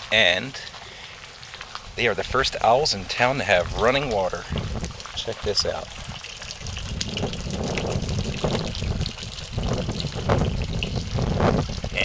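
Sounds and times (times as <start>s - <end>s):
water running from garden hose: 0.0s - 12.0s.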